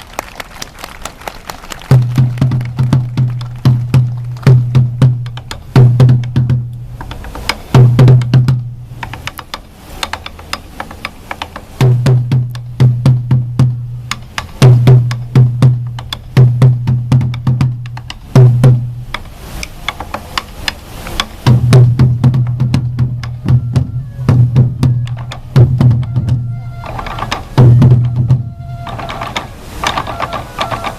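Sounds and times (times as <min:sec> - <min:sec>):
deep drum booms: 0:01.9 - 0:06.8, 0:07.7 - 0:09.0, 0:11.8 - 0:14.0, 0:14.6 - 0:19.0, 0:21.5 - 0:26.7, 0:27.3 - 0:29.0
sharp clicking drum strikes: 0:01.9 - 0:30.9.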